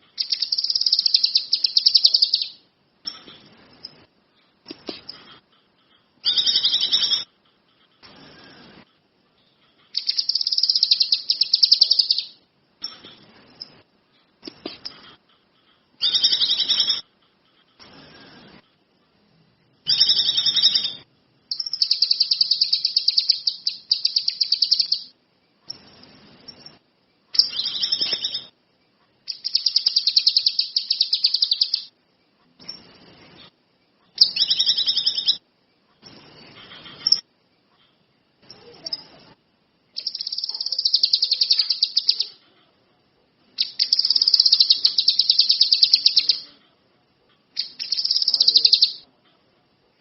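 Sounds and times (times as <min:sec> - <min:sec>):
songbird trilling: 0:00.2 - 0:02.6, 0:09.9 - 0:12.4, 0:19.9 - 0:25.1, 0:29.3 - 0:31.9, 0:34.2 - 0:35.4, 0:40.0 - 0:42.4, 0:43.6 - 0:46.5, 0:47.6 - 0:49.0.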